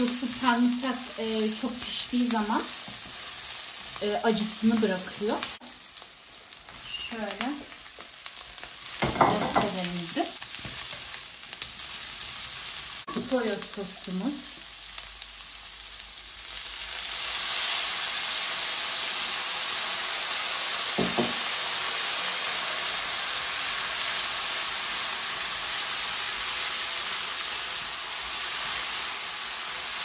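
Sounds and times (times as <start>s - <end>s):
vegetables sizzling in a pan: 0.0s - 30.0s.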